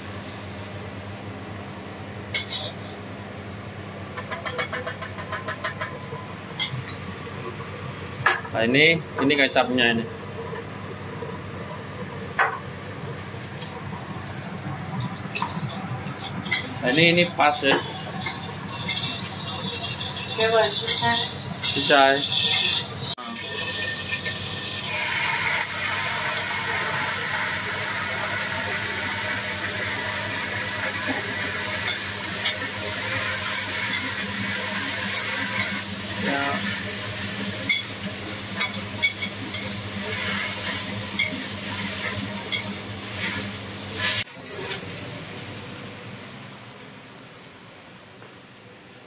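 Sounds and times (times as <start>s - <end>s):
greens sizzling in a wok: 1.8s - 3.0s, 16.3s - 47.0s
metal spatula scraping a wok: 2.4s - 2.8s.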